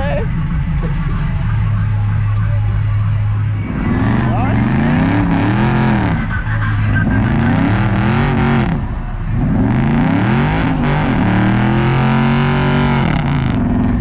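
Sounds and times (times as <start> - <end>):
car engine revving hard: 3.6 - 14.0.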